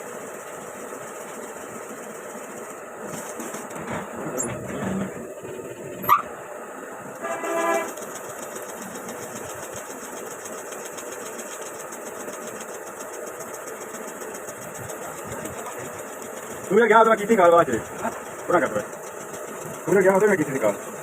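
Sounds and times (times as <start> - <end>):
small motorcycle engine running: 0.0 - 6.2, 7.2 - 21.0
sharp rising squeak: 6.0 - 6.3
short horn-like beep: 7.2 - 7.9.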